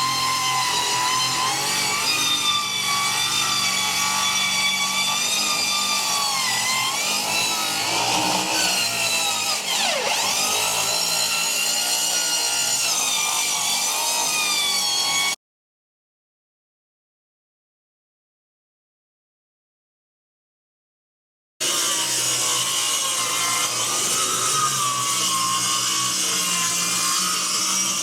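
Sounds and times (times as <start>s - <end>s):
electric saw cutting wood: 0.0s - 15.4s, 21.6s - 28.0s.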